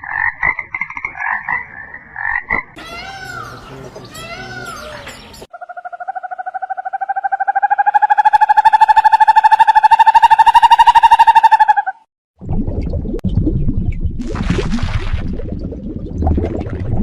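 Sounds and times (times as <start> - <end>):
animal trill of rapid pulses: 5.5 - 12.0.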